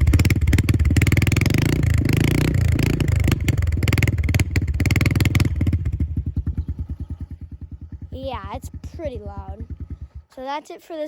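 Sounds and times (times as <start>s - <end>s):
motorbike engine revving and idling: 0.0s - 10.9s.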